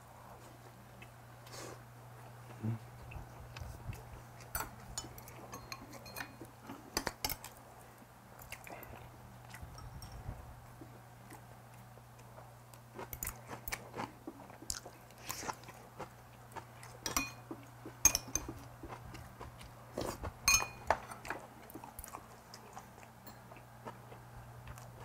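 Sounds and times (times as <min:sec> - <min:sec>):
low steady hum: 0:00.0 - 0:25.0
utensils clinking against bowls: 0:04.4 - 0:07.5, 0:09.7 - 0:10.2, 0:17.0 - 0:18.7, 0:20.5 - 0:21.4
person chewing and crunching: 0:11.2 - 0:25.0.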